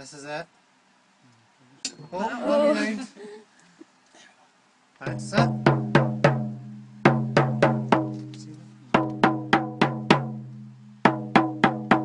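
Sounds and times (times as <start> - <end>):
small drum beats: 5.0 - 12.0.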